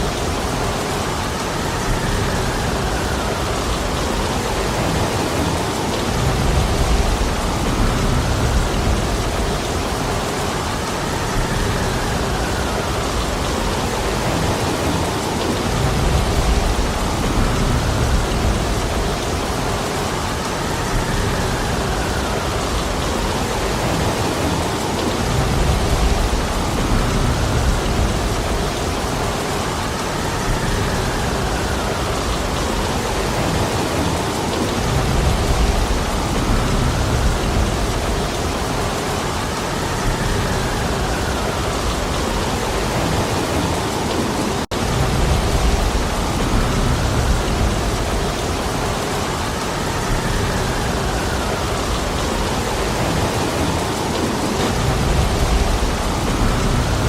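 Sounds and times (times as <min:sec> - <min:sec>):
heavy rain falling: 0:00.0 - 0:57.0
wind: 0:00.0 - 0:57.0
low rumble: 0:54.6 - 0:57.0.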